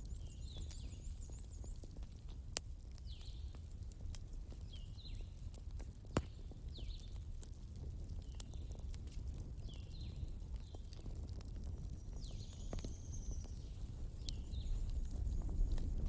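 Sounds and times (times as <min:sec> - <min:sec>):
bonfire crackling and popping: 0:00.0 - 0:16.0.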